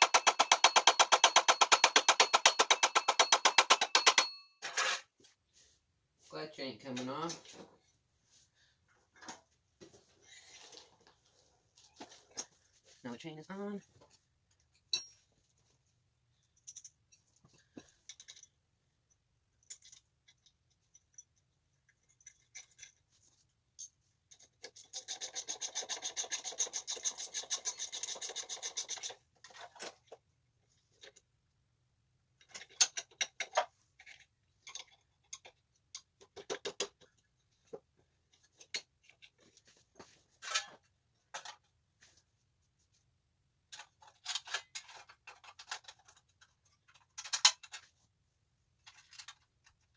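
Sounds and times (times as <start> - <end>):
hand tool clicking: 0.0 - 4.4
metal parts knocking: 0.0 - 4.8.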